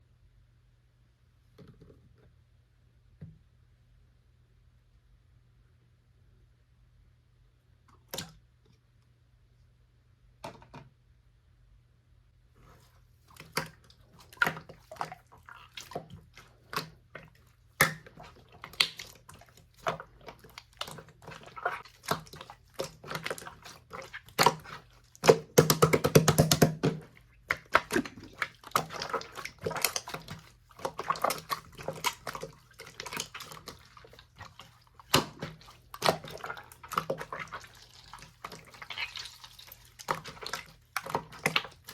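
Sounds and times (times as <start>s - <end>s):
slime squished by hand: 13.4s - 41.9s.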